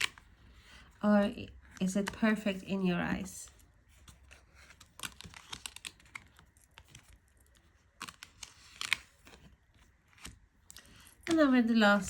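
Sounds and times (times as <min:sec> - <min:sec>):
cards clicking and tapping: 0:04.0 - 0:09.5.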